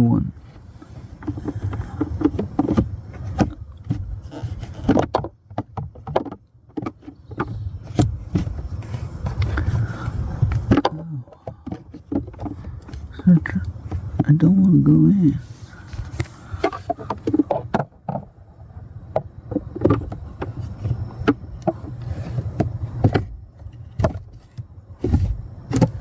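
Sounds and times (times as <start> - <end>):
filter scraping in plastic housing: 0.5 - 14.4, 15.3 - 18.3
plastic clicks and knocks: 1.2 - 8.6, 10.5 - 14.5, 16.0 - 18.3, 19.1 - 26.0.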